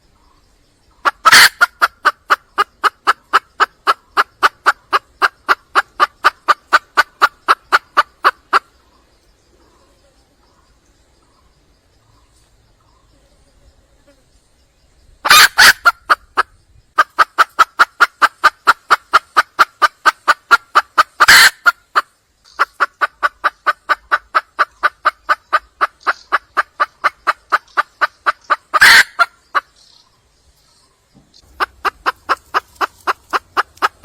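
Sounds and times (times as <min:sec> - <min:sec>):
hen clucking rapidly: 0:00.9 - 0:09.1, 0:15.2 - 0:30.0, 0:31.4 - 0:34.0
harsh hen calls: 0:01.0 - 0:08.8, 0:15.2 - 0:29.8, 0:31.4 - 0:34.0.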